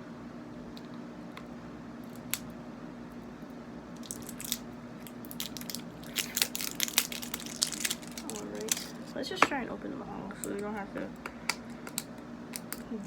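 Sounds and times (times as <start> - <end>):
steady low hum: 0.0 - 13.0
plastic containers crackling and clicking: 5.3 - 9.6, 10.4 - 13.0.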